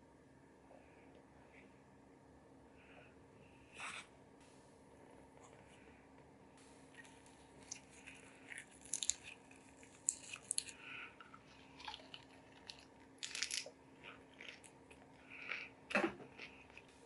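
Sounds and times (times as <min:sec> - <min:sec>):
crunchy eating bites: 0:07.6 - 0:11.0, 0:11.7 - 0:16.9.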